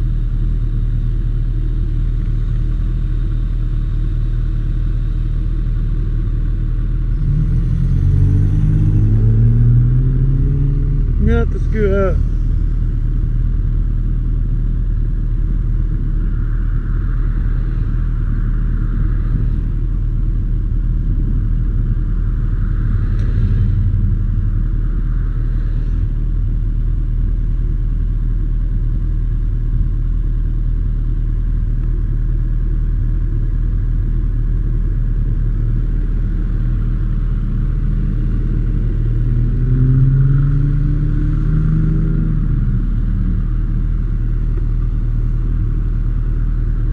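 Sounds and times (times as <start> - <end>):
motorcycle engine running: 40.5 - 46.9.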